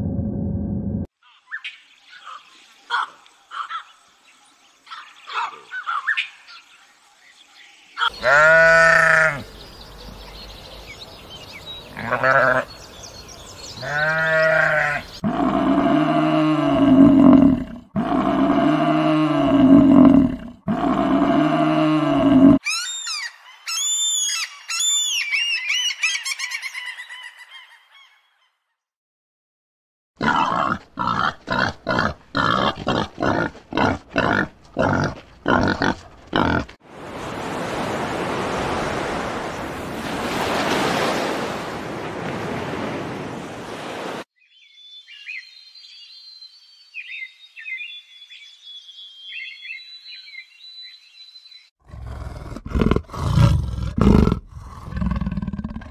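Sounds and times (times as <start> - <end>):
sheep bleating: 8.1 - 9.5, 12.0 - 12.7, 13.8 - 15.1
shrill seabird calls: 22.6 - 28.2
waves washing onto a beach: 36.9 - 44.3.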